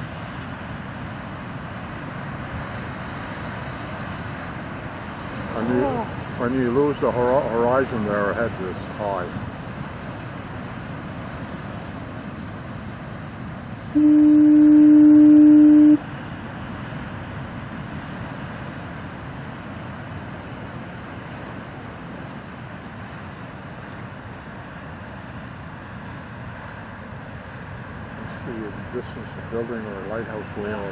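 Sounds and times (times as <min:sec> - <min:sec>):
heavy surf rushing: 0:00.0 - 0:30.9
foghorn low blast: 0:14.0 - 0:16.1.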